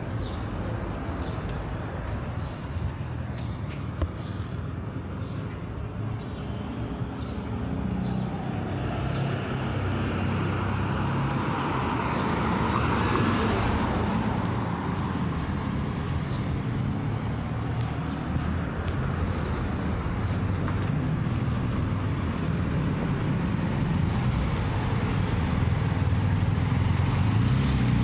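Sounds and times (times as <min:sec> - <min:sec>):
vehicle passing: 0:07.5 - 0:28.0.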